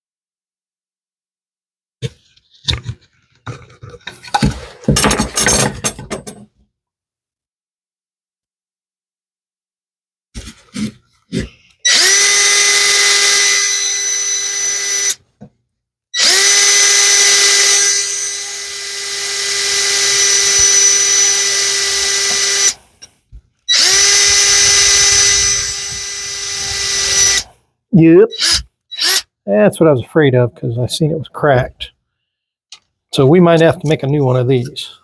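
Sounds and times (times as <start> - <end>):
electric drill drilling wood: 11.8 - 15.2, 16.2 - 22.8, 23.7 - 27.5, 28.3 - 29.3.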